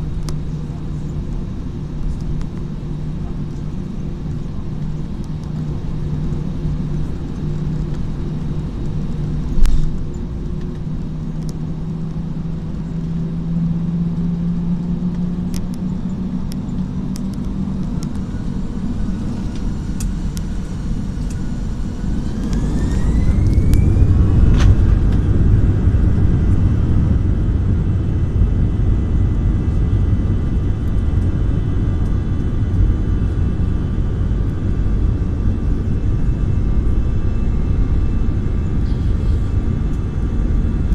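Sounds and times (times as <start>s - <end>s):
jet engine hum: 0.0s - 40.9s
jet engines spooling up: 14.1s - 40.9s.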